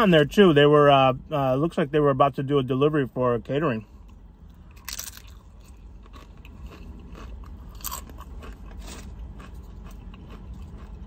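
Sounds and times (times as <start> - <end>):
chewing crunchy chip: 4.5 - 11.0.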